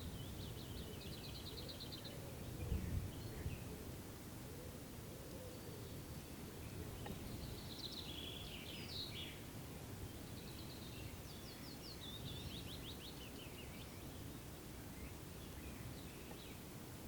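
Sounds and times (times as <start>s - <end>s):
small songbird singing: 0.0s - 3.9s, 4.5s - 17.0s
low rumble of wind: 0.0s - 17.0s.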